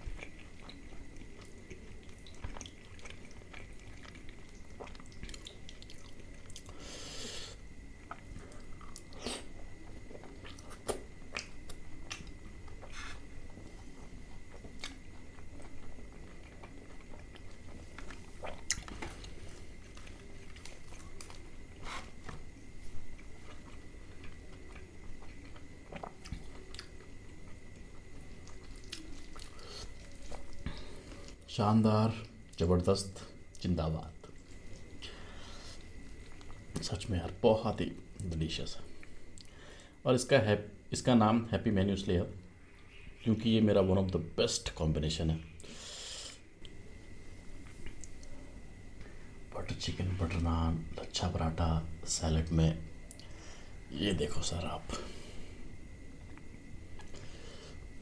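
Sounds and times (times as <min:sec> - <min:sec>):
close chewing with wet mouth sounds: 0:00.0 - 0:06.8, 0:07.9 - 0:31.5, 0:34.3 - 0:36.8.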